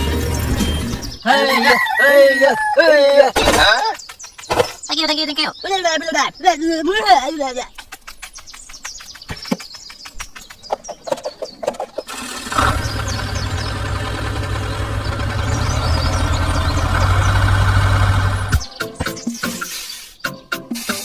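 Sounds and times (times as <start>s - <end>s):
engine running: 12.0s - 18.8s.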